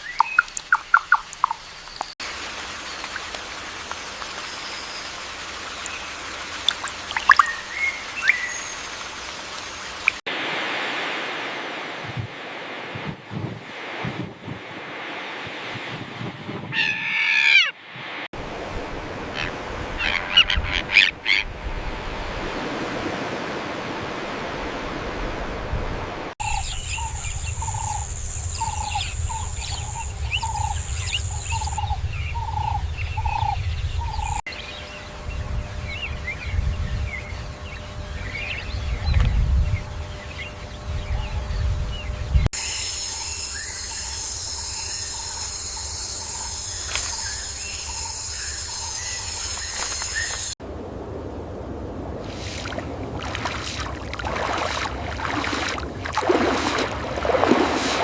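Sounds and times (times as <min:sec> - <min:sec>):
insect chorus: 0:00.0 - 0:10.2, 0:26.4 - 0:50.6
low wind rumble: 0:04.6 - 0:58.0
high insect drone: 0:26.4 - 0:31.9, 0:34.5 - 0:50.6.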